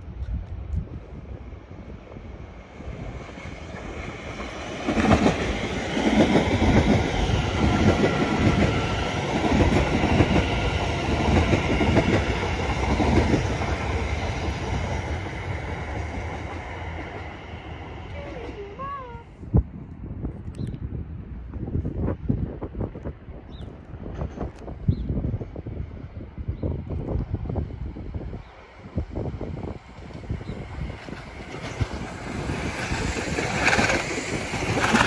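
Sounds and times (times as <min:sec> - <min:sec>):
electric train passing: 0:00.0 - 0:19.3, 0:22.0 - 0:35.0
wheels clattering over rail joints: 0:30.8 - 0:35.0.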